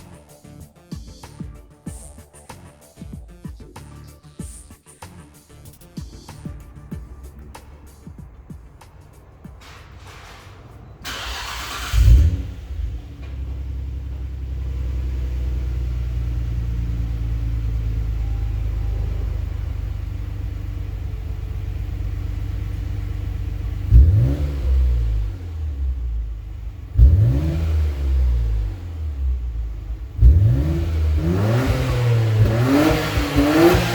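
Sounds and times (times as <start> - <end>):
car engine starting and idling: 5.5 - 33.9
engine throttle blip: 6.3 - 33.9.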